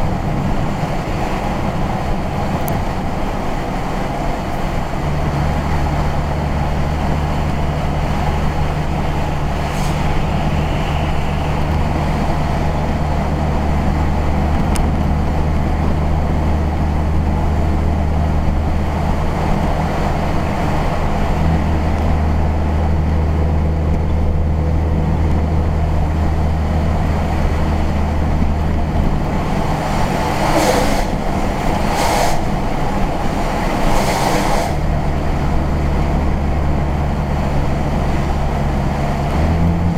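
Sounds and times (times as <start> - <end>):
low engine hum: 0.0 - 39.9
tyre and road noise: 0.0 - 39.9
brief whooshes: 9.6 - 11.7, 29.7 - 34.9.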